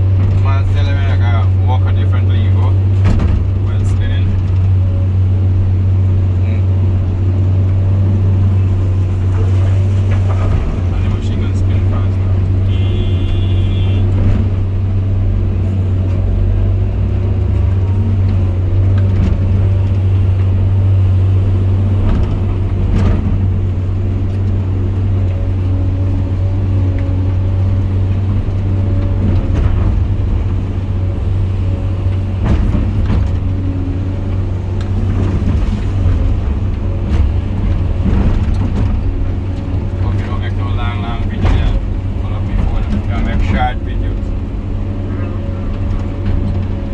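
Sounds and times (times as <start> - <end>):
diesel engine running under load: 0.0 - 46.9
short knocks: 17.2 - 46.9.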